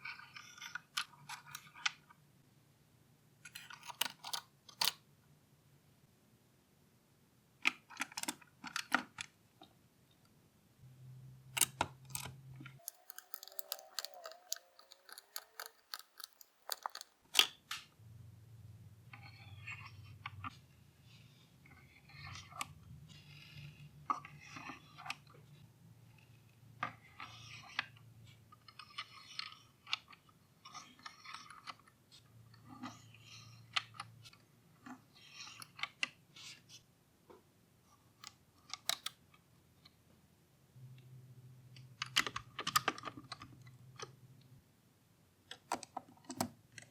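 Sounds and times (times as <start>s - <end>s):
plastic parts clicking: 11.5s - 17.9s, 38.2s - 39.2s, 41.9s - 44.2s
scratchy crackling: 12.8s - 17.2s.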